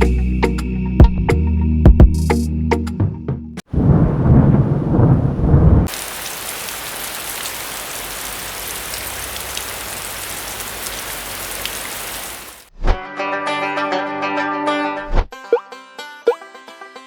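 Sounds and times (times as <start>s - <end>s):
low thunder rumble: 3.7s - 6.6s
heavy rain hissing: 3.7s - 12.7s.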